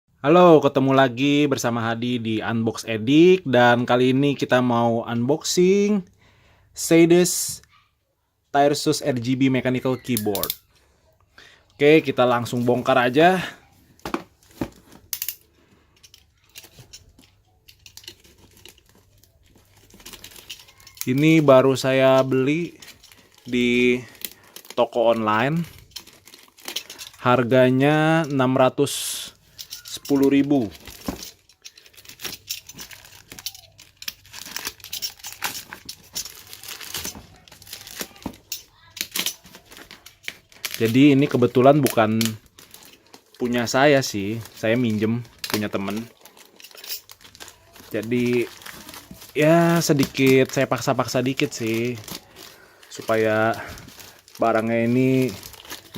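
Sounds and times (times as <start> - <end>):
plastic packaging crinkling: 12.1 - 28.3, 29.3 - 55.9.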